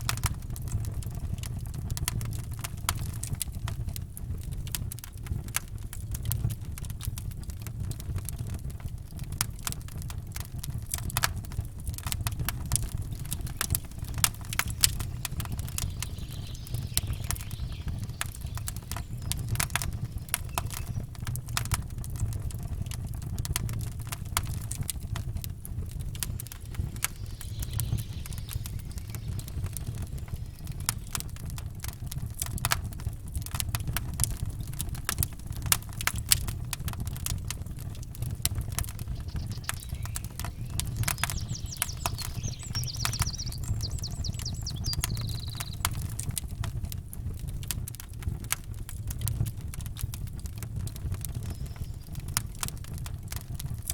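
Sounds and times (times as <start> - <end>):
campfire crackling: 0.0 - 53.9
low rumble: 24.0 - 32.3.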